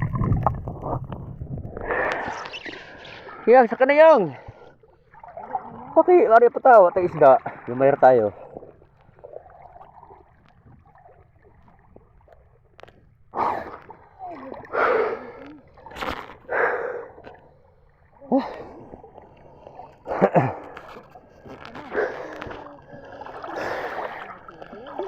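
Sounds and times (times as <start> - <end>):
water splashing: 0.0 - 25.0
breathy voice sounds: 18.2 - 25.0.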